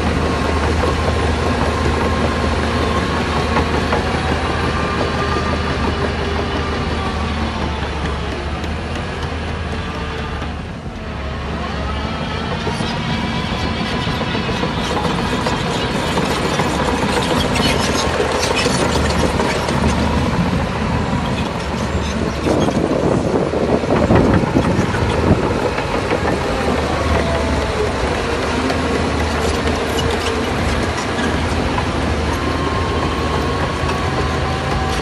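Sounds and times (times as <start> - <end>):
diesel engine under load: 0.0 - 35.0
steel tracks clanking: 0.0 - 35.0.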